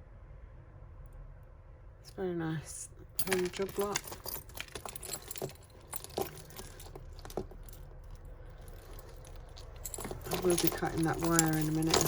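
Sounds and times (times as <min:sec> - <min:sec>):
jewellery clinking and rattling: 0:03.2 - 0:12.0.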